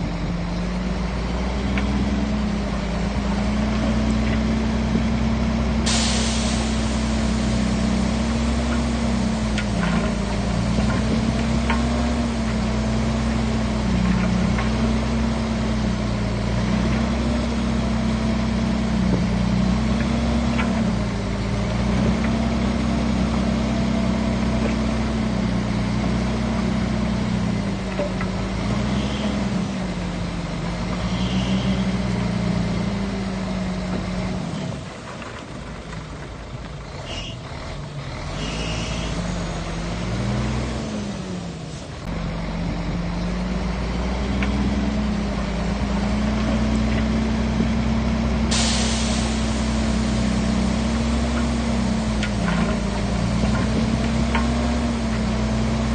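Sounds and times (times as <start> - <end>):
bulldozer diesel engine under load: 0.0 - 55.9
short high squeaks: 31.1 - 31.9, 37.1 - 37.4, 38.4 - 39.3.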